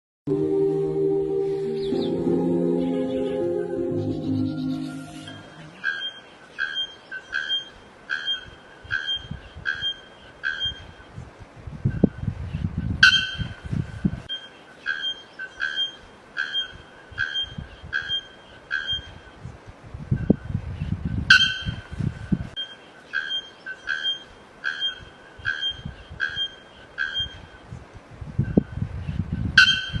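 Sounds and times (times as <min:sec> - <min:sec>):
bird-like chirps: 0:04.0 - 0:10.9, 0:14.3 - 0:19.2, 0:22.6 - 0:27.5.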